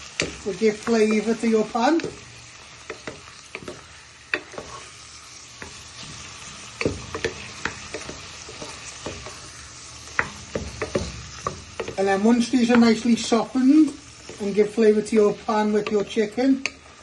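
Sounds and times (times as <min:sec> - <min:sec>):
food sizzling in frying pan: 0:00.0 - 0:17.0
wooden spoon knocking pan: 0:05.6 - 0:09.4, 0:10.0 - 0:16.8.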